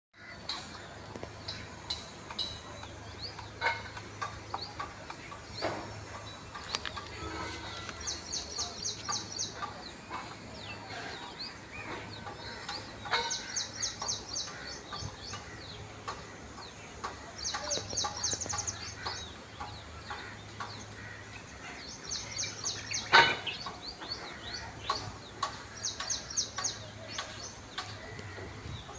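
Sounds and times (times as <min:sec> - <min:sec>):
bird notes and clicks: 0:00.4 - 0:10.3.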